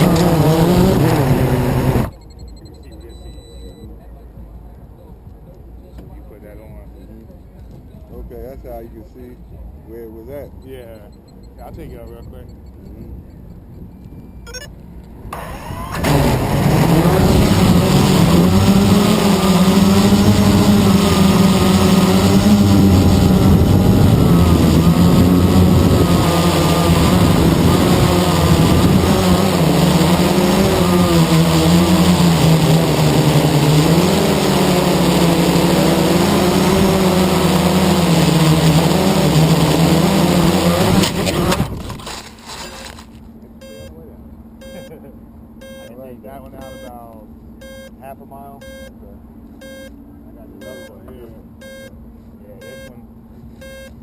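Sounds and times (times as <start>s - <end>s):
quadcopter propellers humming: 0.0s - 4.5s, 10.3s - 54.0s.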